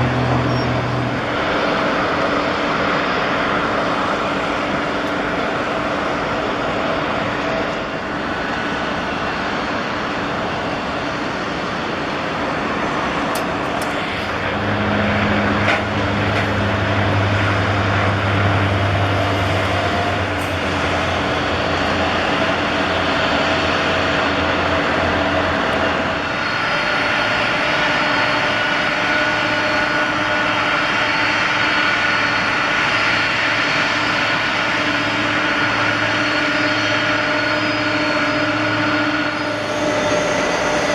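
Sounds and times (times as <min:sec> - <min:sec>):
jet engines running: 0:00.0 - 0:40.9
low hum: 0:12.6 - 0:27.7, 0:29.8 - 0:40.9.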